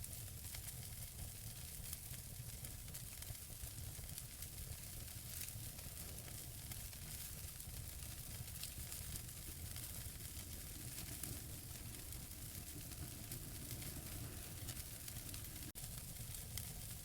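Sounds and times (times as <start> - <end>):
wood fire hissing: 0.0 - 17.0
logs crackling and popping: 0.5 - 17.0.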